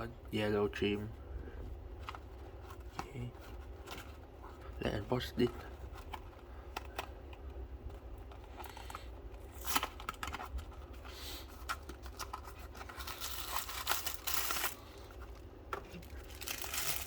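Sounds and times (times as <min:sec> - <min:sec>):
blister pack torn open: 0:08.6 - 0:10.4, 0:11.7 - 0:14.8, 0:15.9 - 0:17.0.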